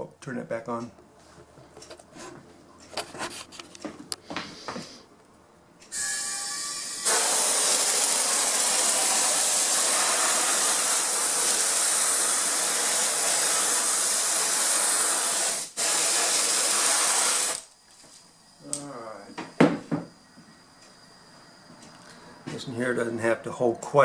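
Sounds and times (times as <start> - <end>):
spray glue hissing: 7.0 - 17.7.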